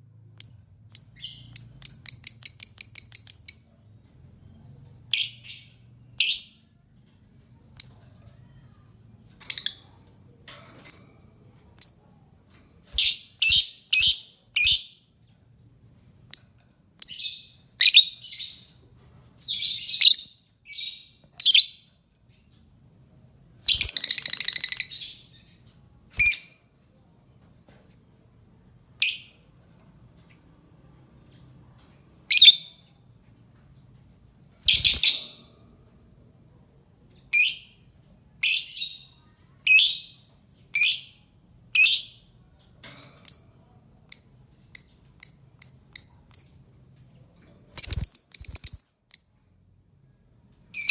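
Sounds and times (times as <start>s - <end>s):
lovebird chirping: 0.4s - 3.9s, 12.9s - 15.0s, 16.3s - 18.8s, 23.7s - 25.6s, 32.3s - 32.8s, 34.6s - 35.4s, 37.3s - 42.3s, 43.3s - 49.4s.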